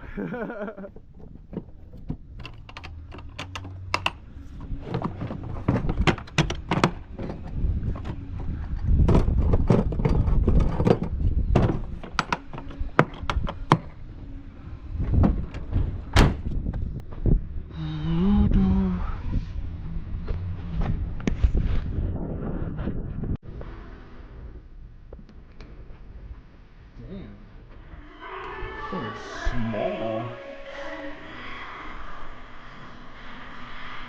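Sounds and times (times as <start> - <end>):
knocks clicks and thuds: 0.8 - 14.1
low rumble: 0.8 - 25.1.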